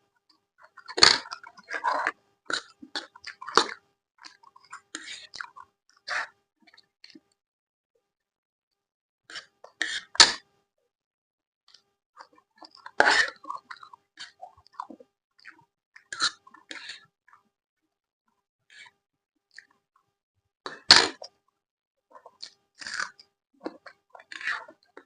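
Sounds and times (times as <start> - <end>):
chewing and wet mouth noises: 12.2 - 17.4
crunchy bites: 22.8 - 24.7.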